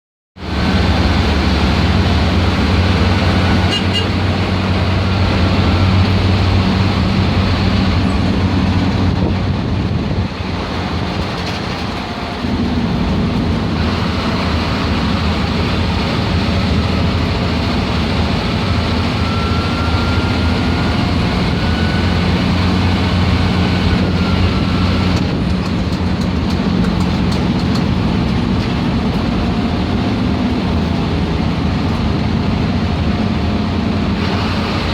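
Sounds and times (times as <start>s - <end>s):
turbocharger whistle: 0.4s - 8.2s, 13.8s - 25.2s
bus diesel engine under load: 0.4s - 34.9s.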